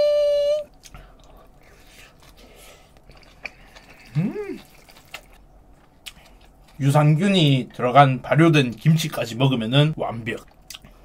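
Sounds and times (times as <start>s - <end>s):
person humming mm: 0.0s - 0.7s, 4.0s - 4.7s
faint wet chewing: 0.8s - 6.8s, 10.2s - 11.0s.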